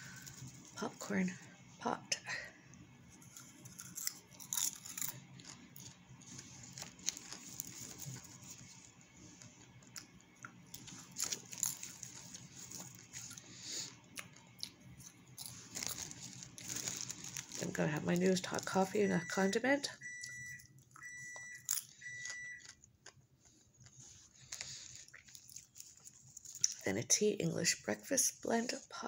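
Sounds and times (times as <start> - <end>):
person chewing popcorn: 3.0 - 18.8, 20.0 - 26.9.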